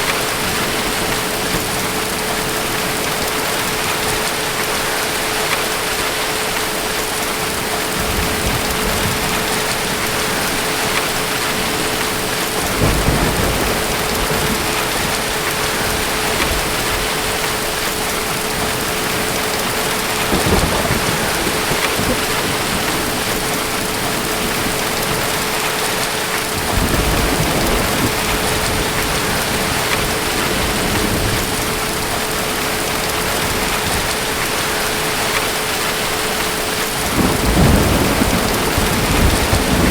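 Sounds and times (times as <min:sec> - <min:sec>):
heavy rain: 0:00.0 - 0:39.9
low thunder rumbling: 0:07.4 - 0:39.9.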